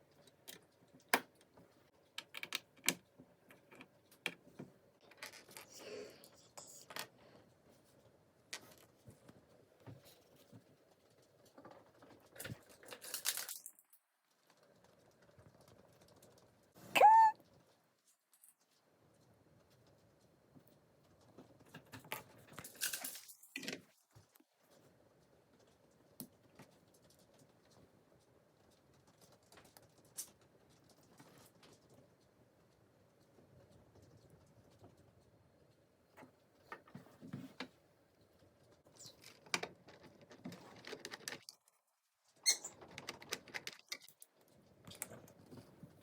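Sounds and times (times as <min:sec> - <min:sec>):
plastic pieces clicking and rattling: 0:12.4 - 0:13.8.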